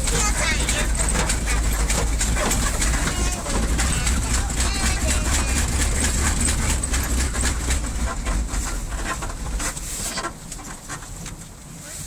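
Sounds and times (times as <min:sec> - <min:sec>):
clicks and rattles: 0:00.0 - 0:11.4
truck engine rumble: 0:00.0 - 0:12.0.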